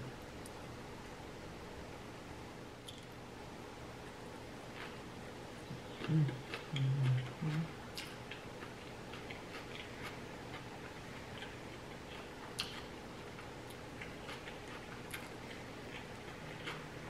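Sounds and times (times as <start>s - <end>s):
faint steady hum: 0.0s - 17.0s
chewing mouth sounds: 5.7s - 17.0s.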